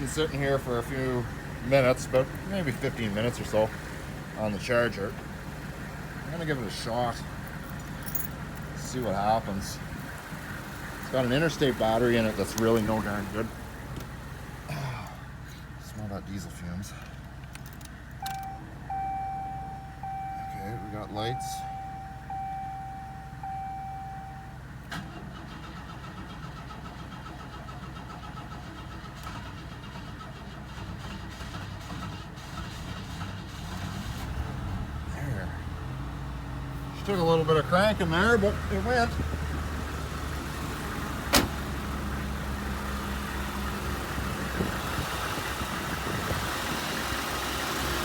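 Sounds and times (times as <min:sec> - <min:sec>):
car engine idling: 0:00.0 - 0:33.5, 0:34.7 - 0:48.0
car starter cranking engine: 0:17.0 - 0:34.4
steady beep: 0:18.4 - 0:24.6.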